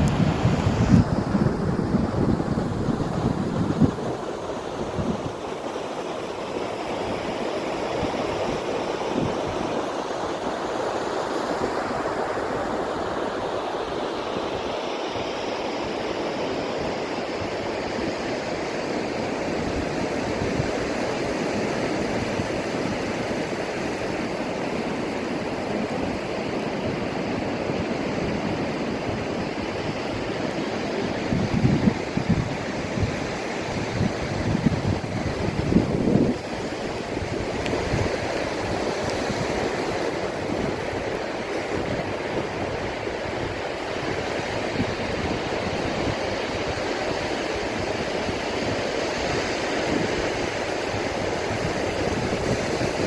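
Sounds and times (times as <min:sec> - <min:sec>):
wind buffeting microphone: 0:00.0 - 0:05.6, 0:19.5 - 0:53.0
surf washing on shore: 0:00.0 - 0:53.0.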